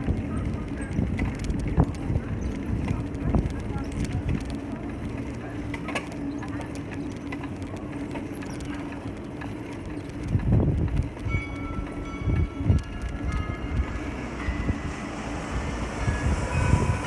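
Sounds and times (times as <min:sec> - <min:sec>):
heavy vehicle humming: 0:00.0 - 0:17.0.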